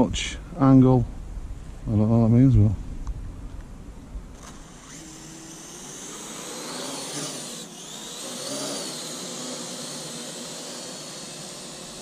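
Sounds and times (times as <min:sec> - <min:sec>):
drone propellers whining: 0:04.2 - 0:12.0.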